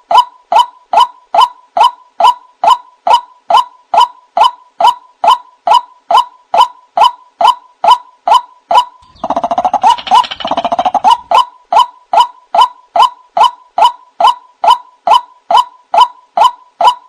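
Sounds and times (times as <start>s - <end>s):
rapid chattering croaks: 9.0s - 11.4s
waterhen calling: 9.0s - 11.5s.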